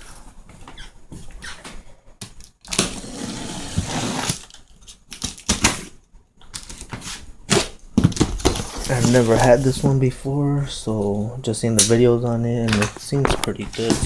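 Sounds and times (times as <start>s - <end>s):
cardboard scraping and rustling: 2.7s - 4.6s, 8.4s - 10.0s.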